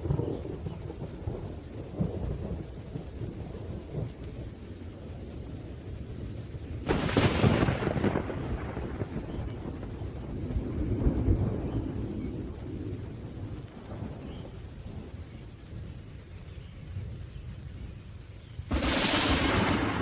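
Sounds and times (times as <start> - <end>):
rolling thunder: 0.0 - 15.9, 18.6 - 20.0
steady rain: 0.0 - 20.0
loud thunderclap: 6.8 - 14.3, 18.7 - 20.0.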